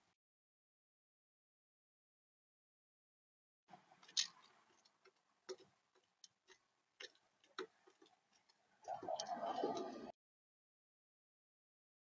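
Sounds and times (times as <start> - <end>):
bird pecking at seed: 3.7 - 9.4.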